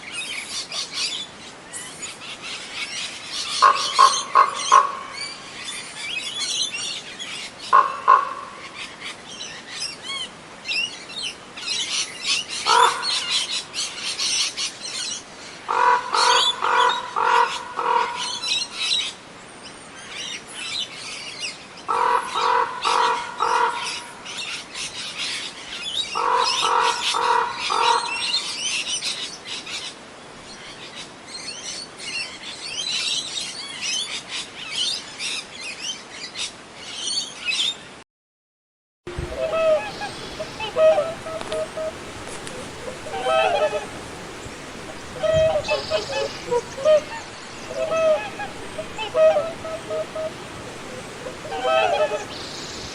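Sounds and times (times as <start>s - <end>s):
harsh low bird call: 39.1s - 52.9s
small birds chirping: 39.1s - 52.9s.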